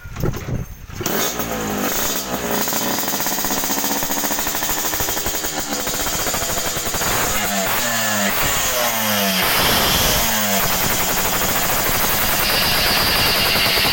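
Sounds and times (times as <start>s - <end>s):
two-stroke motorcycle engine: 0.9s - 13.9s.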